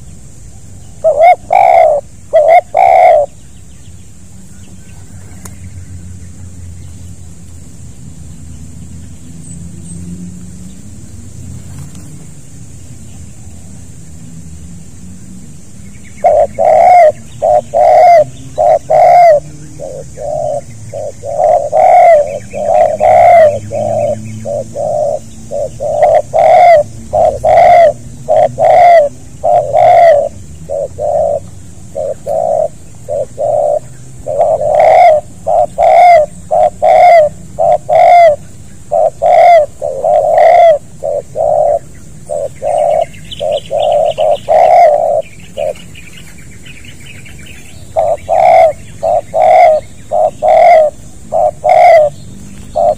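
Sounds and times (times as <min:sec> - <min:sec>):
dove cooing: 0:00.6 - 0:03.4, 0:16.1 - 0:46.3, 0:47.4 - 0:52.9
faint high bird chirps: 0:15.8 - 0:52.9.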